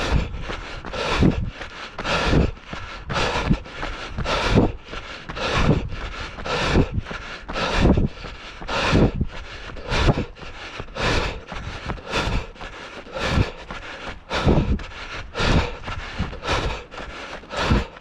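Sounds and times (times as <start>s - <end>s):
wind on microphone: 0.0s - 3.6s, 4.2s - 4.8s, 5.4s - 10.4s, 14.3s - 16.8s
runner's rhythmic footfalls: 0.0s - 18.0s.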